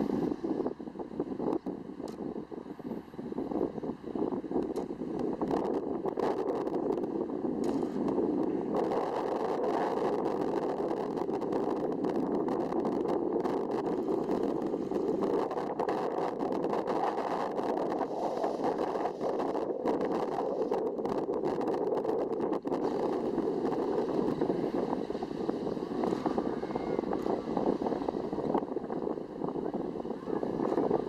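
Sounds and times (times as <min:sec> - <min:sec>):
wind noise on microphone: 0:00.0 - 0:31.0
small crackles: 0:04.6 - 0:28.0.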